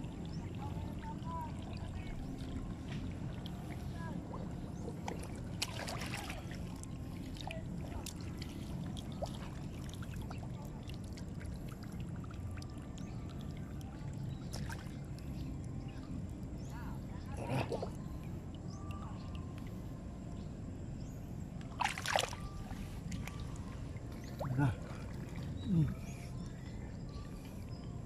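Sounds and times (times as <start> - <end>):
steady low rumble: 0.0 - 28.0
wet mud squelching: 21.7 - 23.4.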